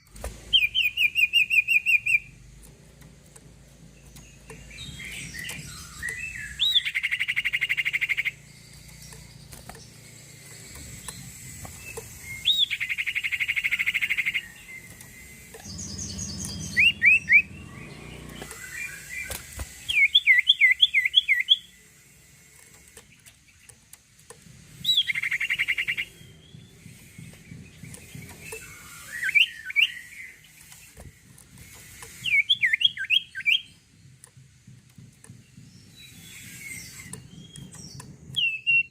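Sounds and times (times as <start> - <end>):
songbird buzzy trills: 0.0 - 38.9
songbird sharp whistled notes: 0.5 - 2.3, 4.2 - 21.8, 24.8 - 31.0, 31.8 - 33.9, 35.7 - 38.9.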